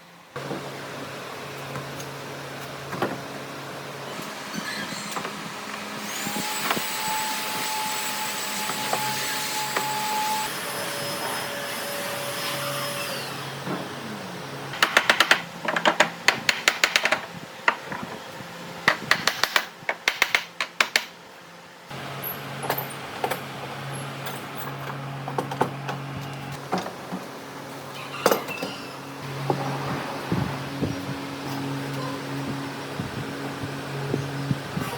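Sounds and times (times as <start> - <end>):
sharp knocks and clicks: 14.8 - 18.0, 18.9 - 21.1.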